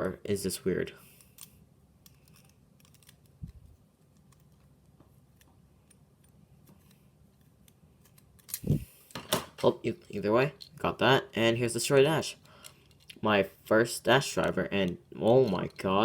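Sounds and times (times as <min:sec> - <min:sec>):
small plastic parts clicking: 0:01.2 - 0:04.6, 0:12.4 - 0:13.2.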